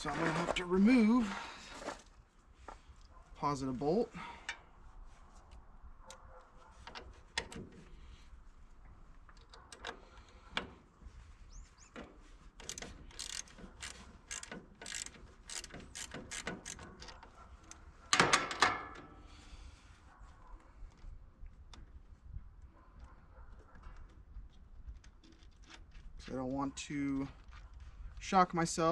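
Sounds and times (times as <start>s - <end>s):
ratchet wrench clicking: 12.6s - 17.2s.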